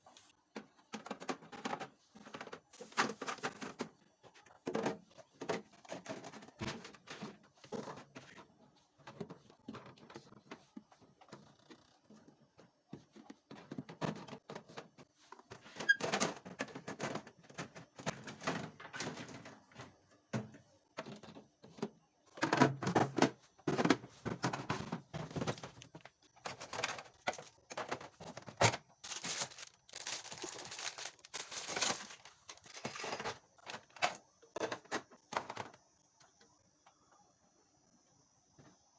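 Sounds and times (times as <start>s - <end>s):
food containers clattering: 0.6s - 4.0s, 13.0s - 35.7s.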